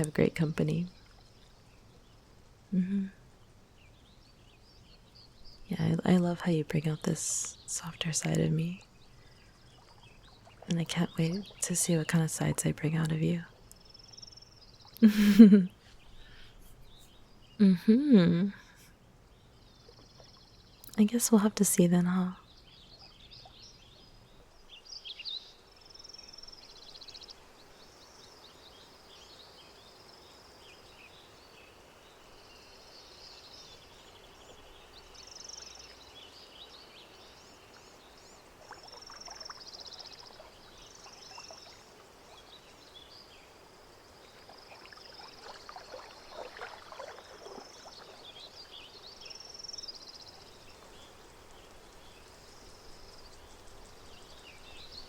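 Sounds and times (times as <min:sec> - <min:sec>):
small birds chirping: 0:00.0 - 0:55.0
water lapping and splashing: 0:09.2 - 0:12.6, 0:37.7 - 0:42.9, 0:43.5 - 0:49.8.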